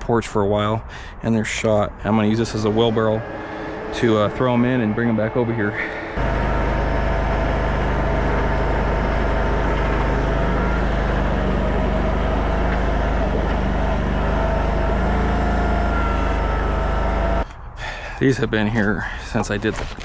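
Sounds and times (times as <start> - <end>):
thin steady whine: 1.4 - 17.4
gas engine running: 2.1 - 17.4.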